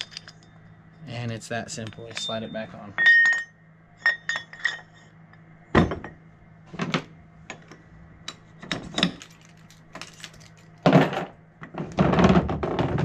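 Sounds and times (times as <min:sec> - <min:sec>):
metal hitch parts clinking: 0:00.0 - 0:00.6.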